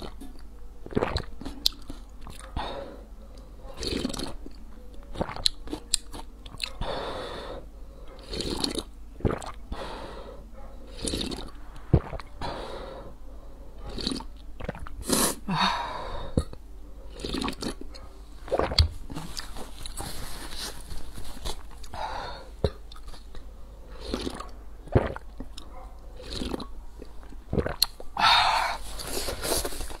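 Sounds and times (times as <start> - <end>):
chewing and swallowing: 0.0 - 2.6, 3.3 - 6.9, 8.1 - 9.7, 10.9 - 12.4, 13.8 - 15.0, 16.4 - 20.0, 22.6 - 28.1.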